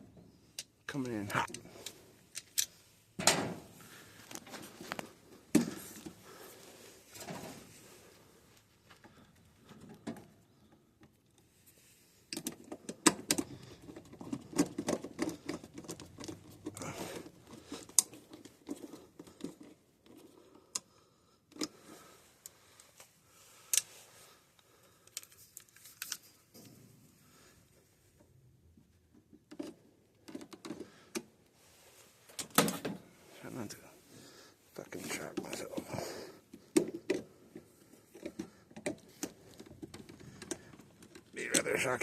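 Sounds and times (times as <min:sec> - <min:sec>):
clicks and taps on wiring: 0:12.3 - 0:20.9, 0:29.1 - 0:31.3, 0:35.1 - 0:41.8.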